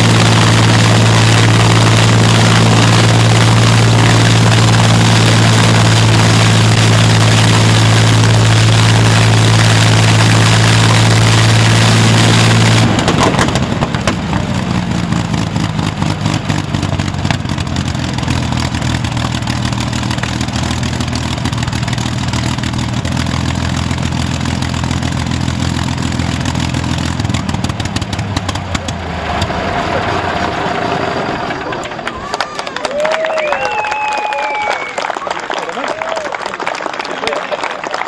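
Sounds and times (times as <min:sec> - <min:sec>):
aero engine idling: 0:00.0 - 0:33.2
applause: 0:31.6 - 0:38.0.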